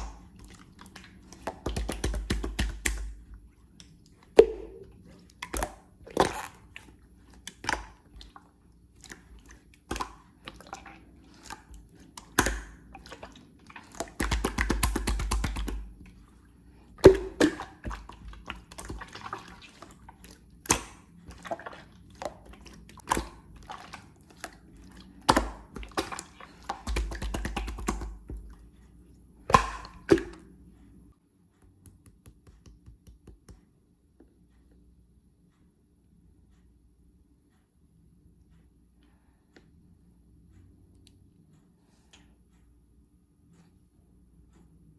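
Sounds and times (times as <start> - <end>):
slime squishing with wet pops: 0.0 - 16.3, 16.9 - 28.8, 29.4 - 30.6.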